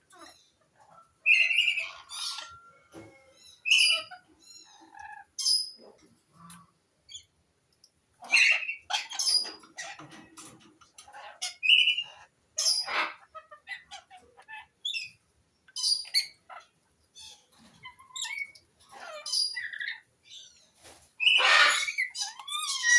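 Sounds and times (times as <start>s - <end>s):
parakeet chattering and squawking: 0.1s - 2.7s, 3.4s - 6.0s, 8.2s - 15.2s, 15.8s - 20.6s, 21.2s - 22.9s.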